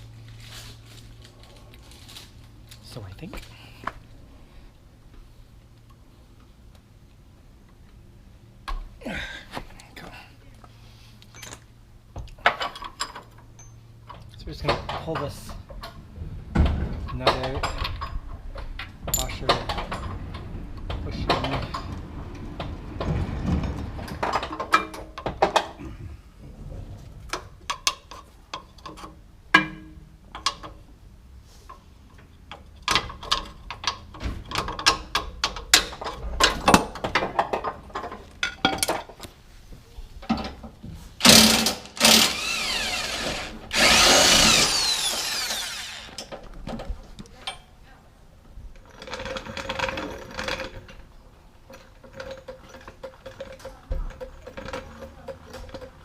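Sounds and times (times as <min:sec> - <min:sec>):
metal tools clanking: 0:12.4 - 0:15.8, 0:19.0 - 0:20.4
power tool spinning: 0:41.2 - 0:46.3.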